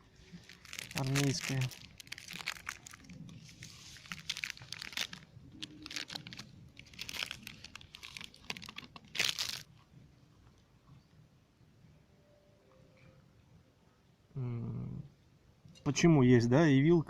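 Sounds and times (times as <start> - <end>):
plastic packaging crinkling: 0.2 - 9.7.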